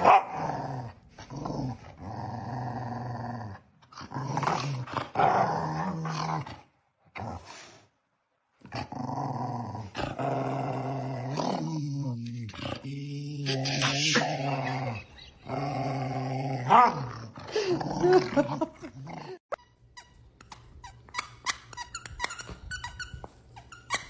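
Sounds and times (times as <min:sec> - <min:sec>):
dog growling: 0:00.0 - 0:07.7, 0:08.6 - 0:19.4.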